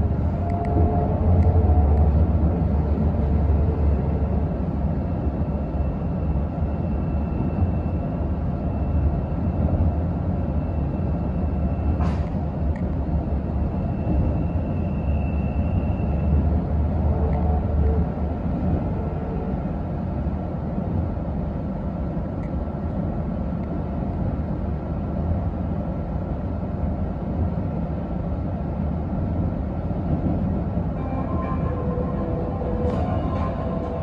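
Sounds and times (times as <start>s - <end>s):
train running rumble and whine: 0.0s - 34.0s.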